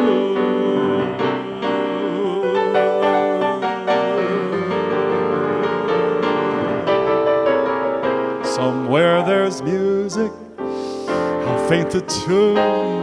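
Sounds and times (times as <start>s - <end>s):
piano chords and sustained notes: 0.0s - 13.0s.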